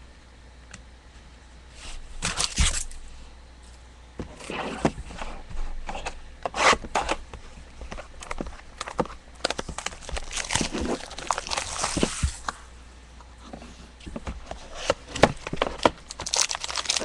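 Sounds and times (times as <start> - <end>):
trading cards rustling: 7.8 - 12.6, 14.1 - 17.0.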